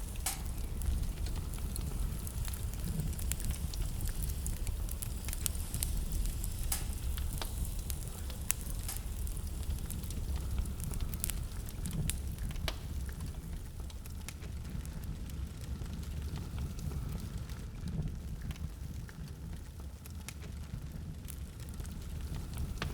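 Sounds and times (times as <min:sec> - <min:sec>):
low rumble of wind: 0:00.0 - 0:22.9
wood fire crackling and popping: 0:00.0 - 0:22.9.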